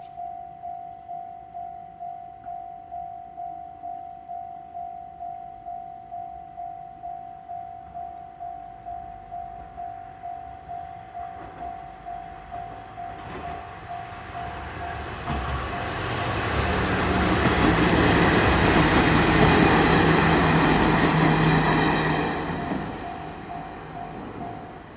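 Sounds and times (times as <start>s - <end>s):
level crossing warning bell: 0.0s - 24.9s
diesel train passing: 10.4s - 24.9s.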